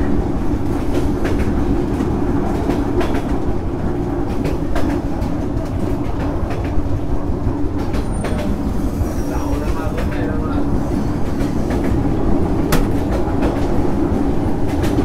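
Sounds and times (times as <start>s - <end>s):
train wheels rumbling on rail: 0.0s - 15.0s
clicks and knocks from track: 0.6s - 3.5s, 4.2s - 6.9s, 7.7s - 8.6s, 11.2s - 13.9s, 14.6s - 15.0s.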